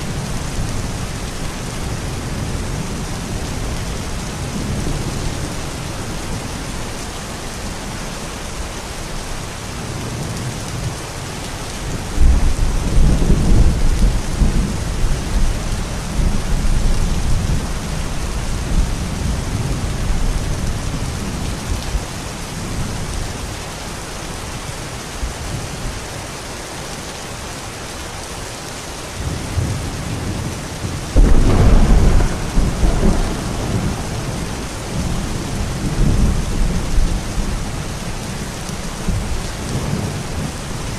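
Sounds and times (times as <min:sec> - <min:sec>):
steady rain hiss: 0:00.0 - 0:40.9
thunder rumbling: 0:11.8 - 0:22.0, 0:29.2 - 0:40.9.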